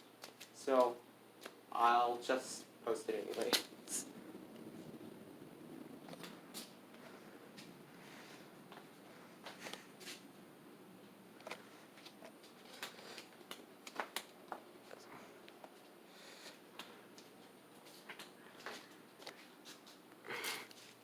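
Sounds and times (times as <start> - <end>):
small clicks and rustles: 0.0 - 1.6, 6.0 - 7.8, 11.4 - 21.0.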